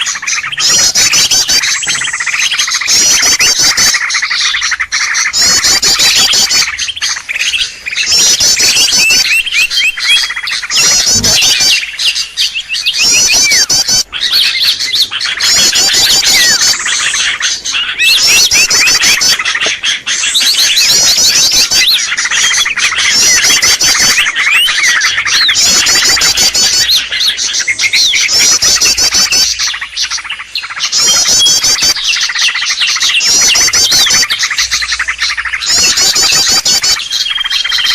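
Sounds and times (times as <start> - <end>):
small birds chirping: 0.0 - 37.9
high fast chattering trill: 10.8 - 11.7.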